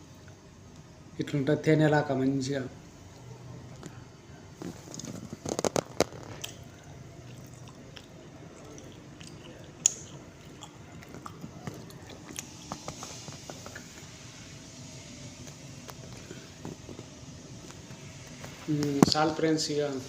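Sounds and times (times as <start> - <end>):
person chewing food: 4.6 - 14.2
mouth clicks: 7.6 - 13.8.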